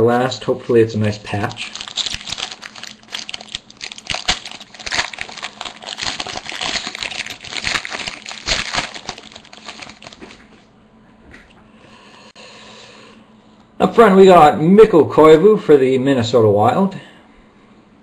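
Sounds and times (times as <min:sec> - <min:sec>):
wrapper crinkling and rustling: 0:01.6 - 0:10.5.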